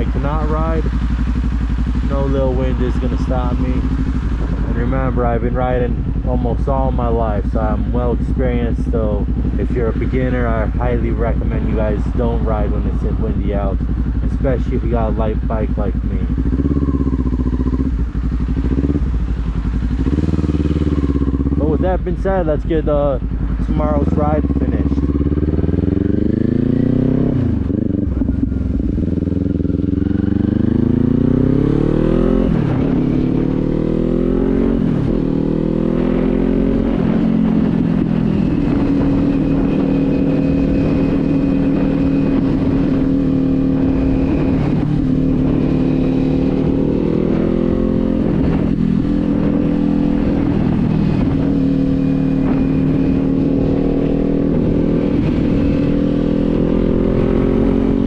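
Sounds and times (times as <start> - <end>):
motorcycle engine accelerating: 0.0 - 58.0
wind buffeting microphone: 0.0 - 58.0.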